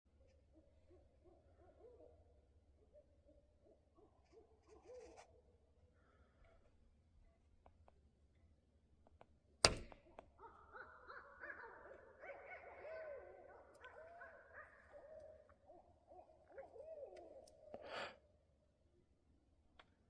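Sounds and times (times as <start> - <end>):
owls calling: 10.4 - 18.0.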